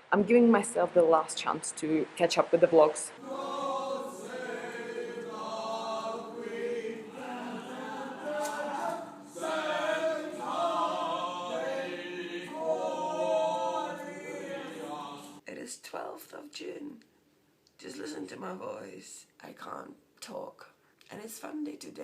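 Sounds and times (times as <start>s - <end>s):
choir singing: 3.2s - 15.4s.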